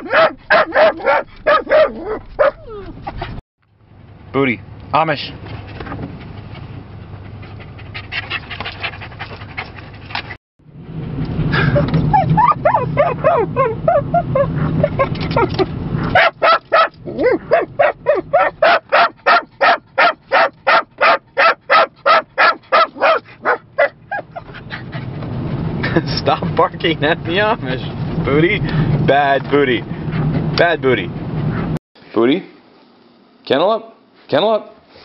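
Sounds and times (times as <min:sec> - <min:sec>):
dog barking fast: 0:00.0 - 0:02.7, 0:12.2 - 0:14.9, 0:16.0 - 0:24.4
car road noise: 0:00.0 - 0:31.8
small dog yipping and whining: 0:01.0 - 0:03.2, 0:12.0 - 0:15.1, 0:17.1 - 0:18.5, 0:23.0 - 0:25.0.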